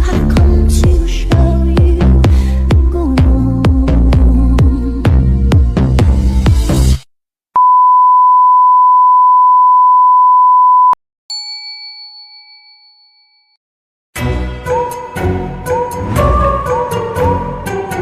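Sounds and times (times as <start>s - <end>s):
music: 0.0s - 7.0s, 14.2s - 18.0s
steady electronic beep: 7.6s - 11.0s
bell-like ding: 11.3s - 13.6s.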